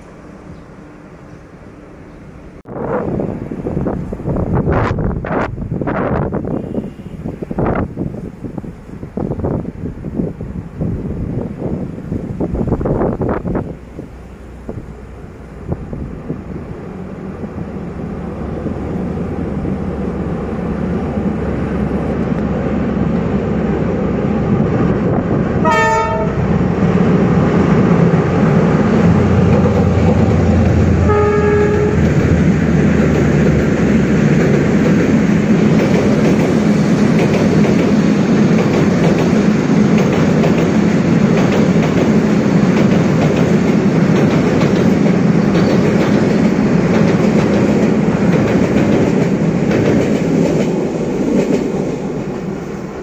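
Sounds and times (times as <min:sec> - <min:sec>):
diesel locomotive rumbling: 0:00.0 - 0:53.0
train horn: 0:06.4 - 0:07.3, 0:25.6 - 0:26.7, 0:30.8 - 0:32.2.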